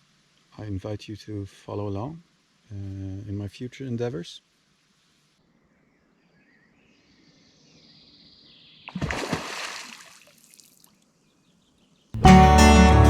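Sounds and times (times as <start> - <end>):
loud splash in water: 8.9 - 10.4.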